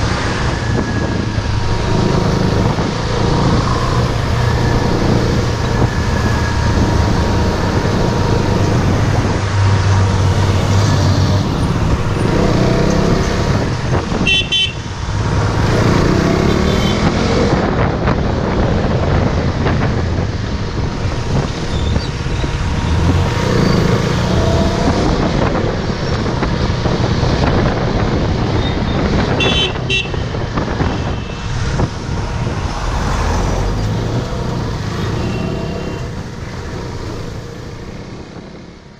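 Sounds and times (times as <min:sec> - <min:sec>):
motorcycle engine revving: 0:00.0 - 0:18.0
wind and road noise: 0:00.0 - 0:38.9
vehicle horns honking: 0:14.1 - 0:14.9, 0:16.4 - 0:17.1, 0:28.6 - 0:31.5, 0:35.0 - 0:36.2.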